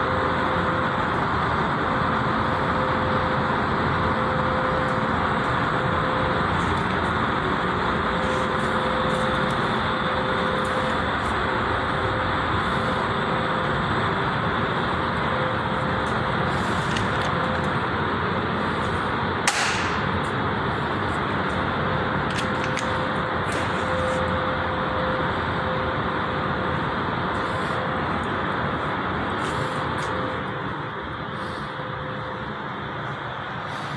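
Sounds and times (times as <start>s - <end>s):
traffic noise: 0.0s - 33.9s
sharp crack: 19.5s - 20.4s.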